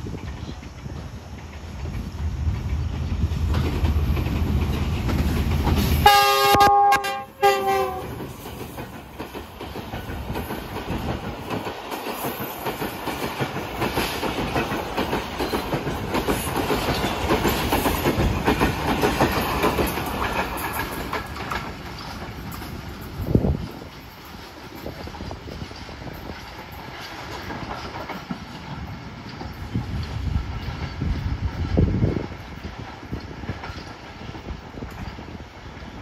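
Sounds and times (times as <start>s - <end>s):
diesel locomotive engine rumble: 0.0s - 36.0s
train coaches rattling past: 0.0s - 36.0s
train air horn: 6.0s - 8.4s.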